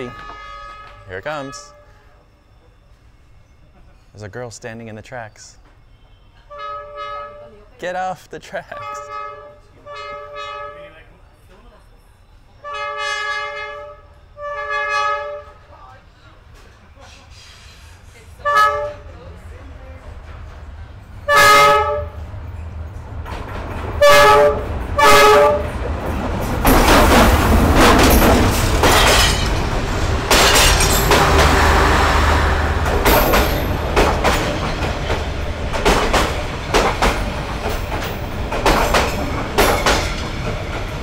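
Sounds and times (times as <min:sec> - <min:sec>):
locomotive horn blasts: 0:00.0 - 0:02.2, 0:06.5 - 0:07.6, 0:08.7 - 0:11.0, 0:12.6 - 0:15.7, 0:18.4 - 0:19.1, 0:21.2 - 0:22.3, 0:24.0 - 0:25.8
train wheels clacking: 0:25.6 - 0:41.0.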